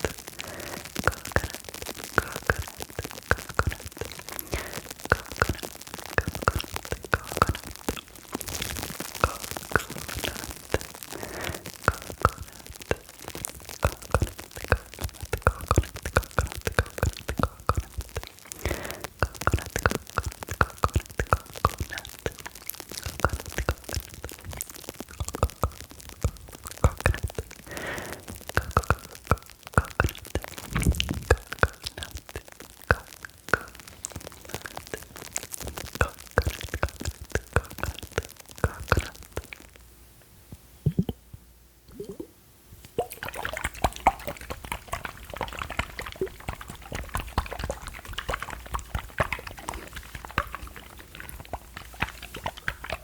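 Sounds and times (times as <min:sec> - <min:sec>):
foam crackling: 0:00.0 - 0:39.8, 0:42.8 - 0:53.0
mouth sounds: 0:00.0 - 0:39.8, 0:40.8 - 0:41.3, 0:41.9 - 0:53.0
plastic film crinkling: 0:43.8 - 0:53.0.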